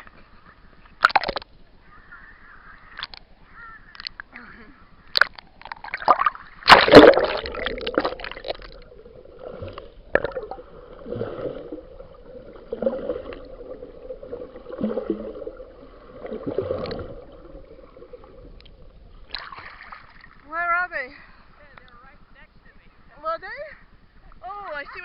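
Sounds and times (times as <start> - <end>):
seawater sloshing and gurgling: 5.2 - 20.5.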